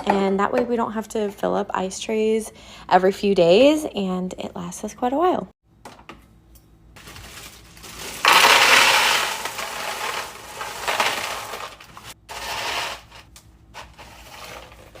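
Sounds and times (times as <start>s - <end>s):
ice clattering into bucket: 7.0s - 15.0s.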